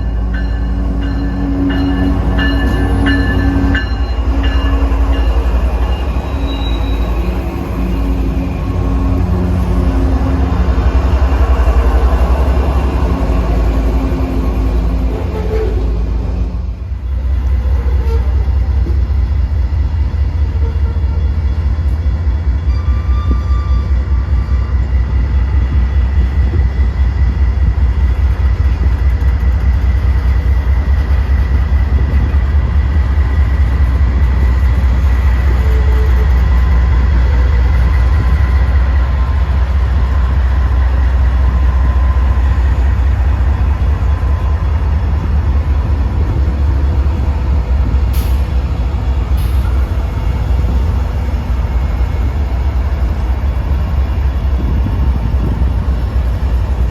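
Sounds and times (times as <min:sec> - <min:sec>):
freight train rolling past: 0:00.0 - 0:56.9
high squeal: 0:00.1 - 0:08.8.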